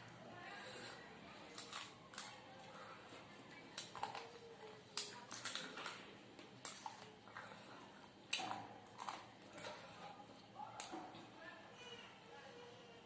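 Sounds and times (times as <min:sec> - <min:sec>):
crunchy chewing: 0:00.6 - 0:11.1.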